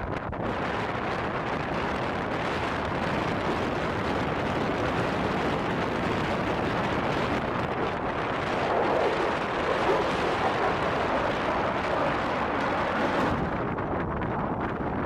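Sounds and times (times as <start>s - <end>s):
jet engine flypast: 2.3s - 13.8s.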